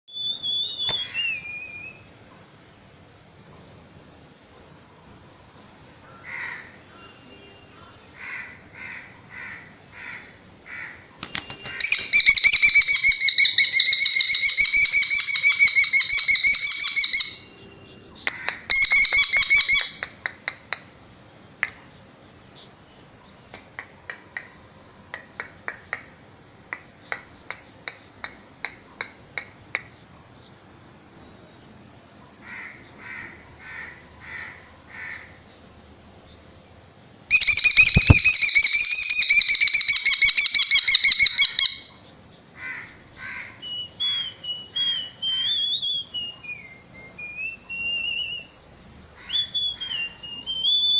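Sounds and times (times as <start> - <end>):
bird calling rapidly: 8.2 - 17.5, 18.2 - 20.1, 37.3 - 42.0.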